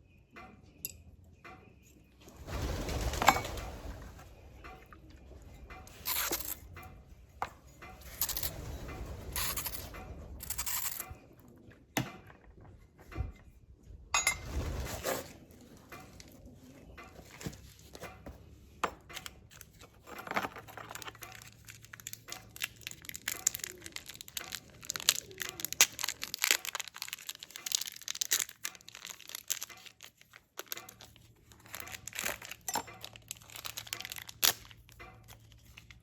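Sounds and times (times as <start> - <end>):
metal parts and tools clinking: 4.6 - 11.2, 18.9 - 36.0
small clicks patter: 19.0 - 36.0.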